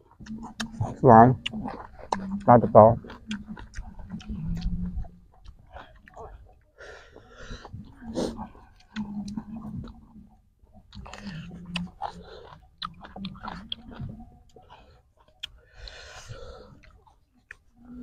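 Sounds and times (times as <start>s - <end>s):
low hums: 0.0s - 12.4s
man chewing: 0.0s - 18.0s
mouth clicks: 0.1s - 6.3s.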